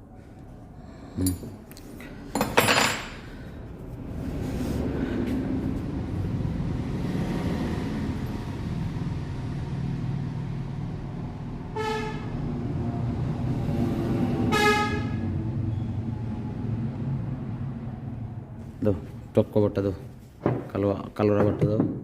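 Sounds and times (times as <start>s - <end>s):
low traffic rumble: 0.0s - 22.0s
vehicle horn honks: 11.8s - 12.3s, 14.5s - 15.2s.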